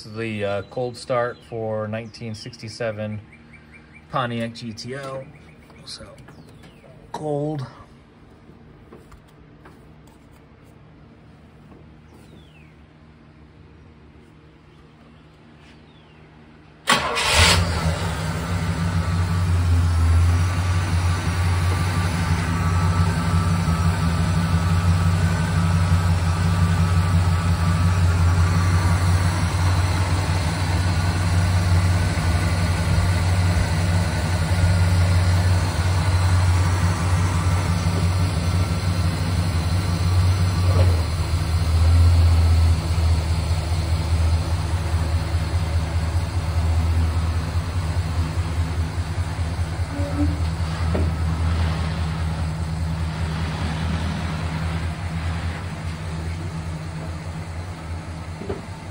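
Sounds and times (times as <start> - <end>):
car engine idling: 16.8 - 58.9.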